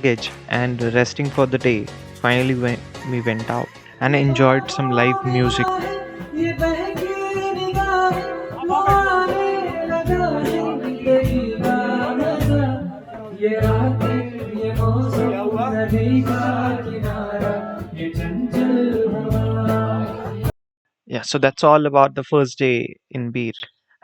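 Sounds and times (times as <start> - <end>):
bass: 0.0 - 20.5
percussive beat: 0.0 - 20.5
guitar: 1.4 - 20.5
person singing: 3.9 - 20.5.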